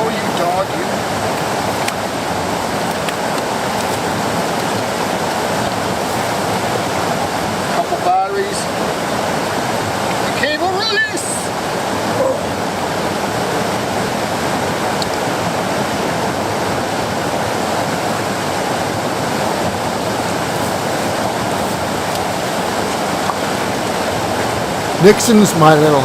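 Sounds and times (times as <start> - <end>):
river rapids rushing: 0.0 - 26.0.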